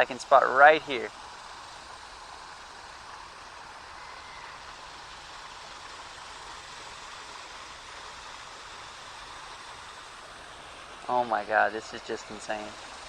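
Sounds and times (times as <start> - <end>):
flowing creek water: 0.0 - 13.0.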